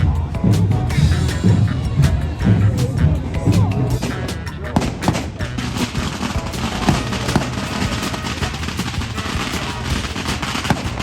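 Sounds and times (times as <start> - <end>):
music: 0.0 - 11.0
firecrackers crackling: 4.0 - 11.0.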